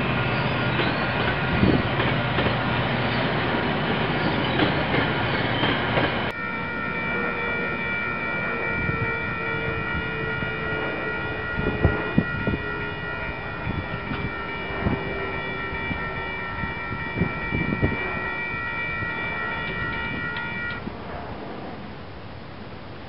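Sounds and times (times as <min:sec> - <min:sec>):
crossing warning bells ringing: 0:00.0 - 0:20.9
diesel train rumbling: 0:00.0 - 0:21.8
wheels clacking over rail joints: 0:00.6 - 0:06.3.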